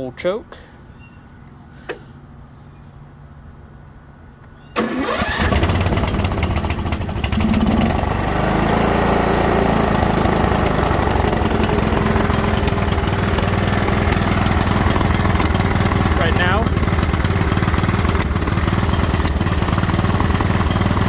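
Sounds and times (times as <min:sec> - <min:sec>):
riding mower engine starting and running: 0:04.7 - 0:21.0.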